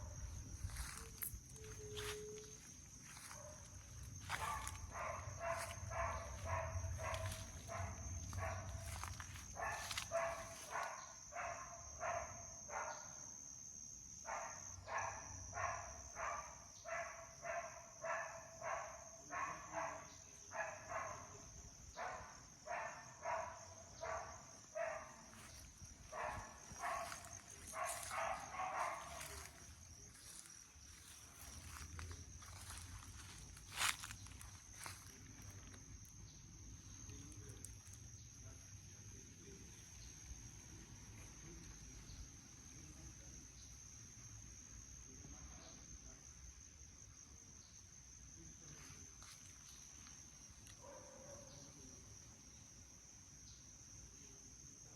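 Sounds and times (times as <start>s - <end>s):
high-pitched insect drone: 0.0s - 11.7s
dog barking: 0.8s - 13.2s, 14.3s - 35.8s, 50.7s - 51.8s.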